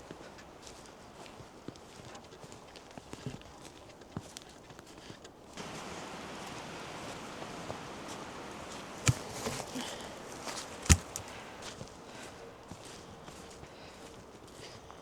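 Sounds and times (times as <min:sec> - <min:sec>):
steady rushing noise: 0:05.6 - 0:09.6
soft taps: 0:05.6 - 0:11.7
sharp knocks: 0:09.0 - 0:11.6.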